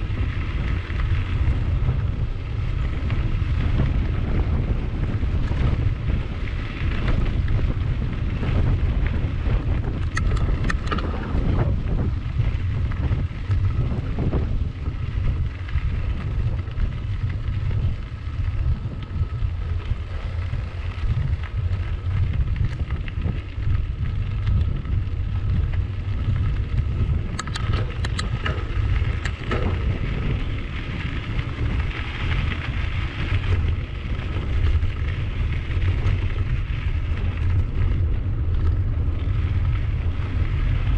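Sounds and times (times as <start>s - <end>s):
wind buffeting microphone: 0.0s - 40.9s
rattles and clicks: 8.5s - 14.6s, 18.7s - 39.7s.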